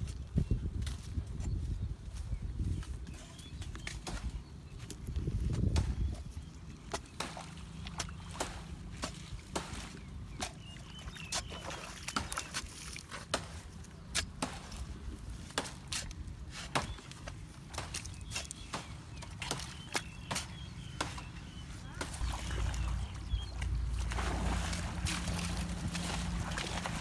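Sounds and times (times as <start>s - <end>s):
wind on microphone: 0.0s - 6.6s
digging knocks and scrapes: 3.1s - 27.0s.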